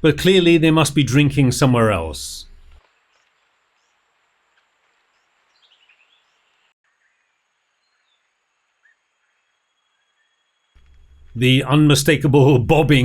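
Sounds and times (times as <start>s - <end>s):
forest background hiss: 0.0s - 13.0s
bird chirps: 5.1s - 11.4s.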